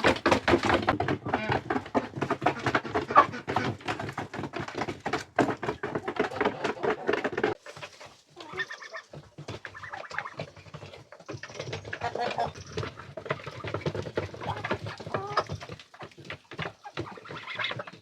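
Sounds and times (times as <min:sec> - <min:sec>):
poultry calling: 0:08.4 - 0:15.7, 0:16.7 - 0:18.0.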